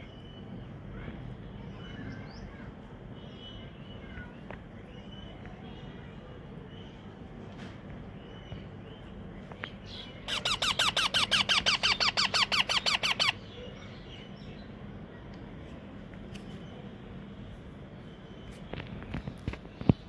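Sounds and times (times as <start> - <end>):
parakeet chick squeaky begging calls: 9.9 - 14.0.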